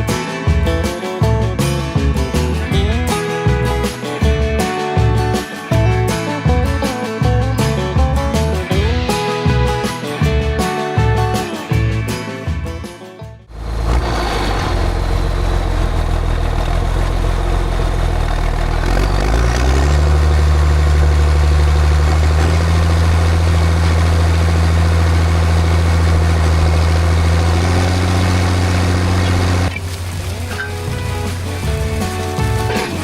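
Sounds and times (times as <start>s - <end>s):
tractor engine running and revving: 13.5s - 33.0s.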